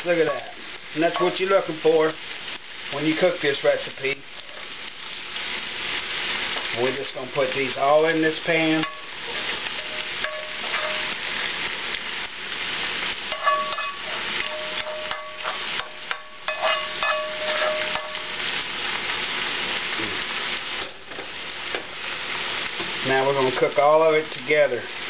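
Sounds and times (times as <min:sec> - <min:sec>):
food sizzling in grease: 0:00.0 - 0:25.0
spatula scraping and clinking pans: 0:08.4 - 0:11.3, 0:13.3 - 0:18.5.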